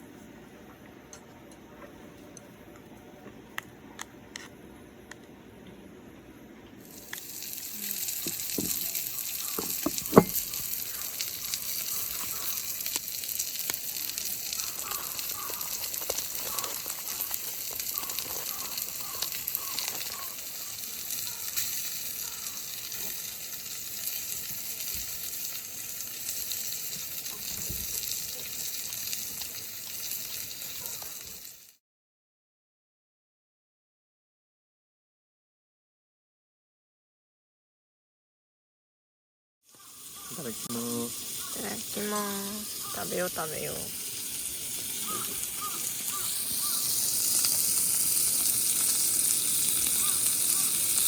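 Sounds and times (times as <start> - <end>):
food sizzling in a pan: 6.8 - 31.8, 39.7 - 51.0.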